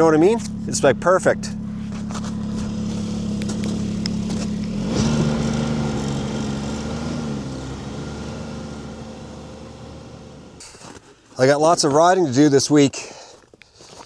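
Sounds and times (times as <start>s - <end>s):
snowmobile engine running: 0.0s - 10.6s.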